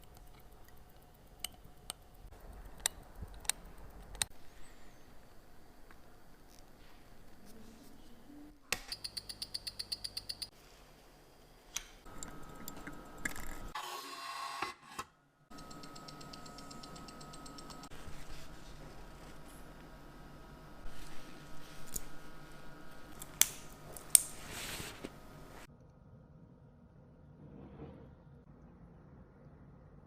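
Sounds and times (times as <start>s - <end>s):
small tool clicks: 0.0s - 4.4s, 8.7s - 10.5s
mechanical watch ticking: 0.0s - 7.4s, 8.8s - 10.5s, 15.5s - 18.6s.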